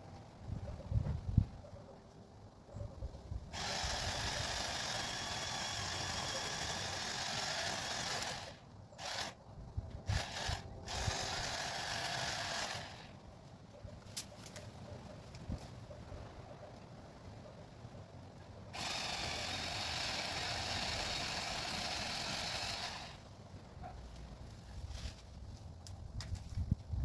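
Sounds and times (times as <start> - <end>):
chainsaw cutting tree limb: 3.6 - 9.4, 10.1 - 13.1, 18.8 - 23.2.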